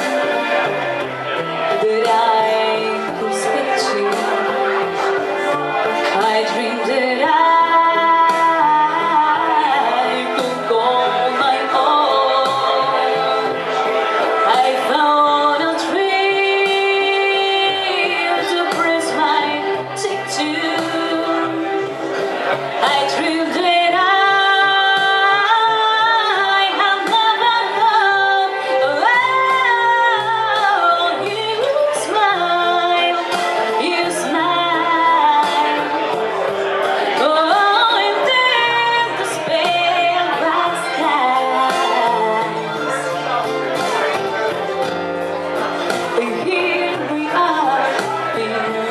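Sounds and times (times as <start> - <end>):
instrumental accompaniment with beat: 0.0 - 48.9.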